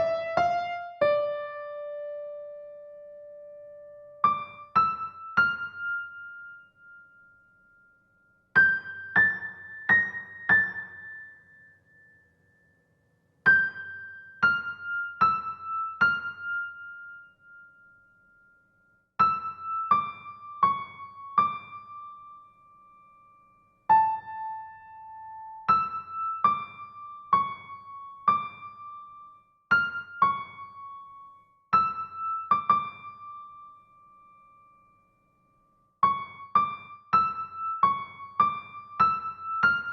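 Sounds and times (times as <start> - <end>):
keyboard playing slow melody: 0.0 - 4.4.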